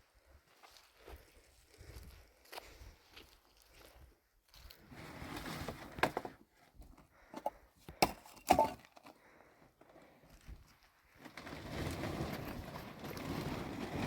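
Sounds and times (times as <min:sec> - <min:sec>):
wooden boards scraping: 0:11.2 - 0:14.0.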